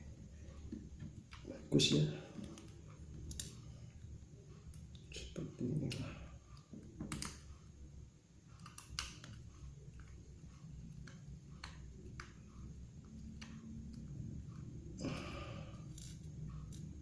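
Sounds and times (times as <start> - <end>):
low steady hum: 0.0 - 17.0
light clicks and taps of tools: 8.6 - 14.2, 15.8 - 17.0.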